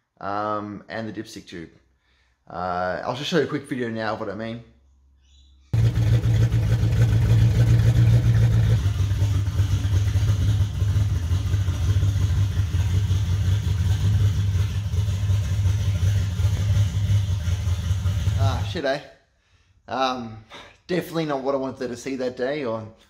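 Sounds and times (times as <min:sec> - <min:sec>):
car engine idling: 0:05.8 - 0:18.8.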